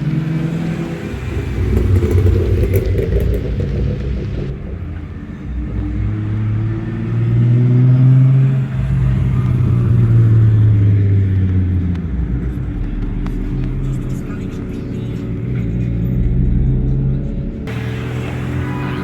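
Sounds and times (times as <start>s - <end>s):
car driving past: 0.0s - 12.5s, 17.7s - 19.0s.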